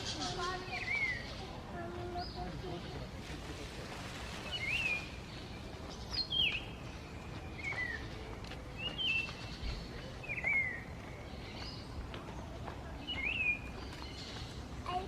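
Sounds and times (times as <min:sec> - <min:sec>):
songbird calling: 0:00.0 - 0:02.9, 0:08.8 - 0:12.0
faint outdoor hiss: 0:00.0 - 0:15.0.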